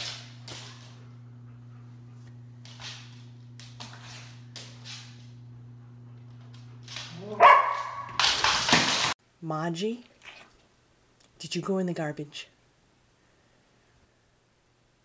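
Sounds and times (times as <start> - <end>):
steady low hum: 0.0 - 8.2
dog barking loudly: 7.2 - 8.2.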